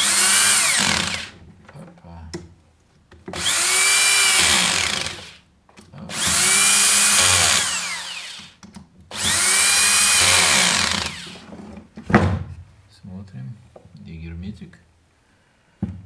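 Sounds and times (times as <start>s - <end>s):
cordless screwdriver whine: 0.0s - 1.4s, 3.3s - 5.4s, 6.1s - 11.4s.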